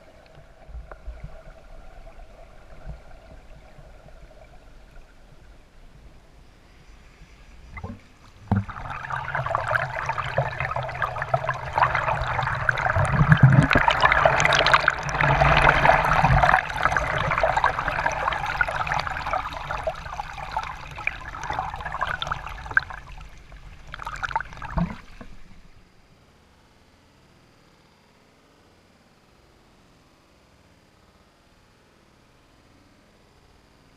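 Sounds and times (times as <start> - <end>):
creek water rushing and splashing: 8.5 - 22.6.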